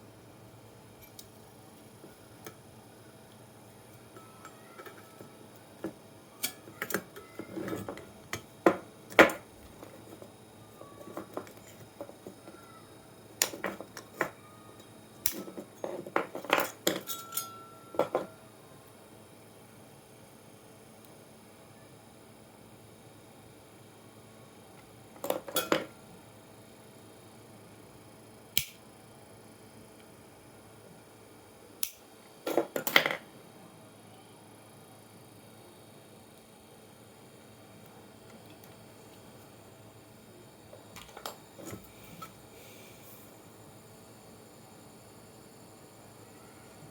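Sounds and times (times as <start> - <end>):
hard objects clicking and knocking: 13.4 - 14.4, 15.3 - 17.3
metal tools clinking: 16.9 - 18.3.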